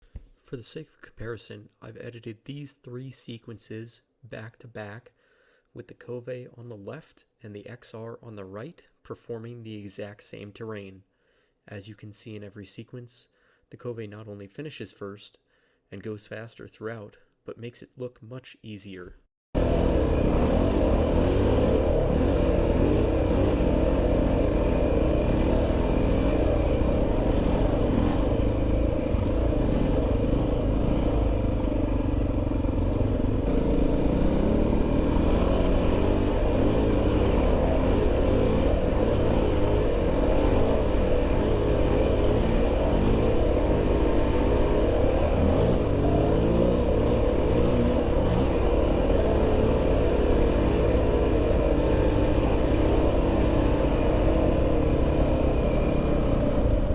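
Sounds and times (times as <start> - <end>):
motorcycle engine revving: 19.6 - 56.9.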